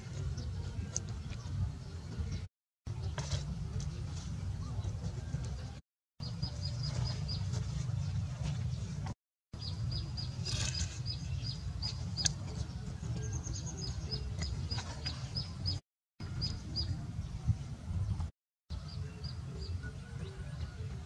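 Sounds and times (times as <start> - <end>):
bird chirping: 6.2 - 9.0, 9.6 - 17.0.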